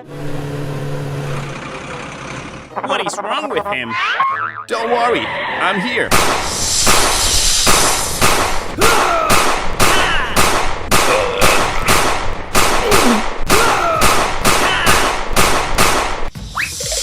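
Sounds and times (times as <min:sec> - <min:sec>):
sharp bangs: 0:06.1 - 0:16.3.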